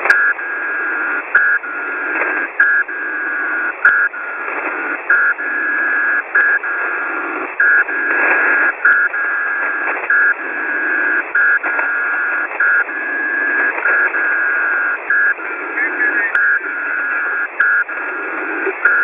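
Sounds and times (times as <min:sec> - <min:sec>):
keyed radio tone: 0:00.0 - 0:19.0
radio receiver hiss: 0:00.0 - 0:19.0.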